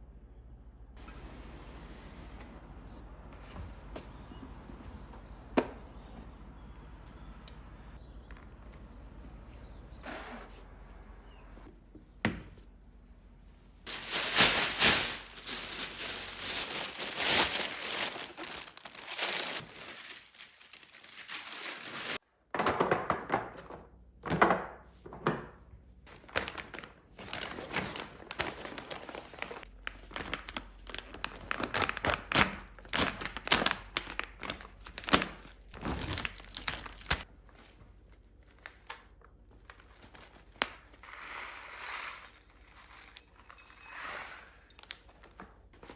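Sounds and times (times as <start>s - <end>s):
packaging crinkling and rustling: 13.9s - 22.2s, 26.1s - 41.1s
packaging tearing: 14.0s - 22.2s, 26.3s - 37.2s.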